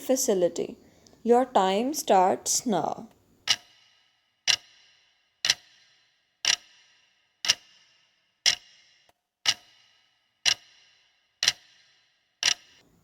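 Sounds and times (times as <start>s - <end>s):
clock ticks with ringing tail: 2.8s - 12.8s.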